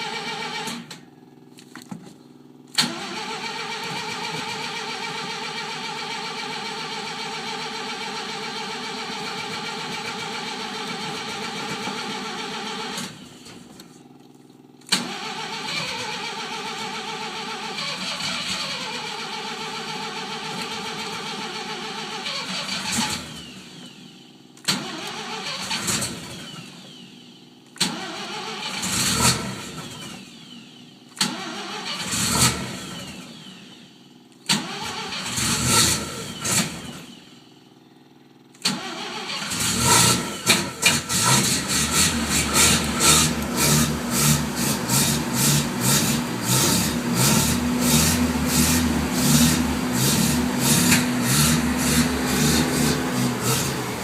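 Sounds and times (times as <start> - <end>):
rotary engine starting and running: 0.0 - 1.0, 2.7 - 14.0, 14.8 - 37.7, 38.5 - 54.0.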